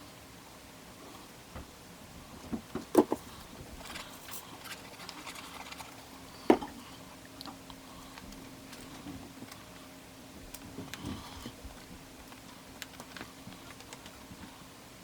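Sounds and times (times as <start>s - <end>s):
paper rustling and clicks: 11.8s - 14.4s.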